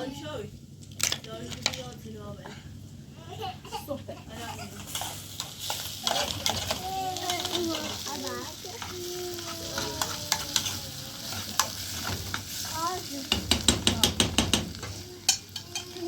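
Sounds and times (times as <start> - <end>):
utensil stirring and scraping pot: 4.3 - 16.0.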